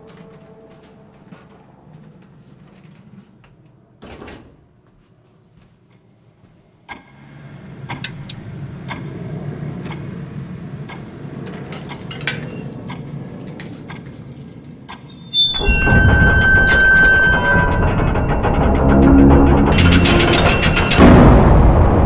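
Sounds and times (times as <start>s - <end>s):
low rumbling drone: 7.1s - 13.4s, 15.6s - 22.0s
descending high tones: 14.3s - 21.2s.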